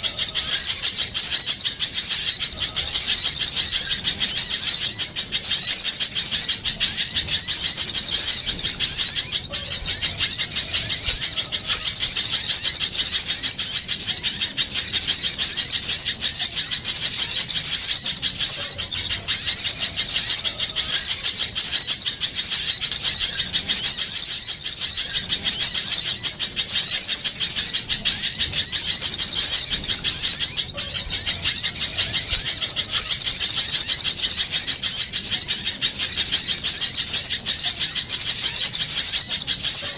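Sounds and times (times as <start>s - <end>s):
small birds chirping and chattering: 0.0s - 39.9s.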